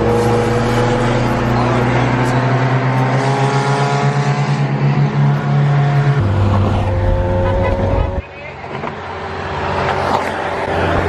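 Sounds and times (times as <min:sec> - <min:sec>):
car engine revving: 0:00.0 - 0:08.2.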